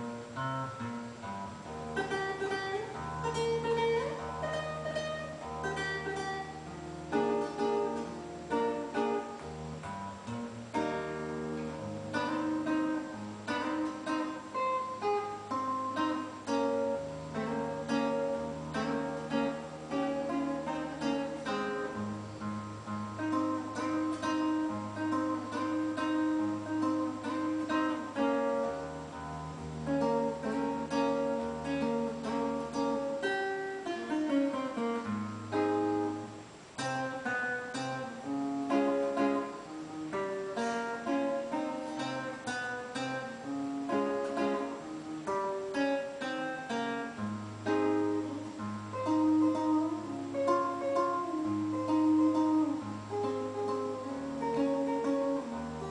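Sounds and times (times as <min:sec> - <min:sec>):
classical guitar fingerpicking: 0:00.0 - 0:55.9.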